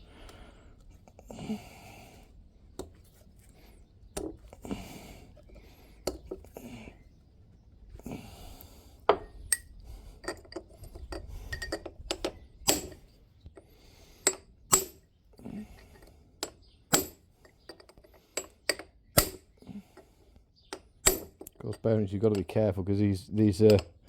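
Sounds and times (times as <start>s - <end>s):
ringing metal-on-metal taps: 20.7s - 22.7s, 23.5s - 24.0s.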